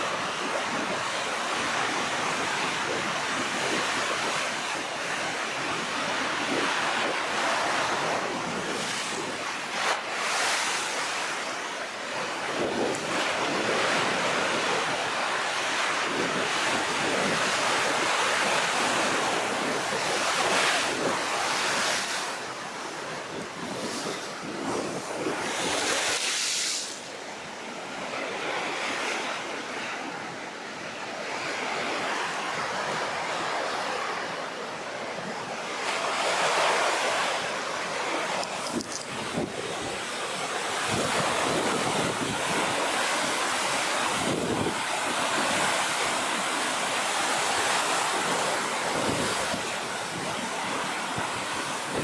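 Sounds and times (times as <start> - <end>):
rough sea waves breaking: 0.0 - 52.0
wind buffeting microphone: 15.7 - 26.3, 35.2 - 52.0.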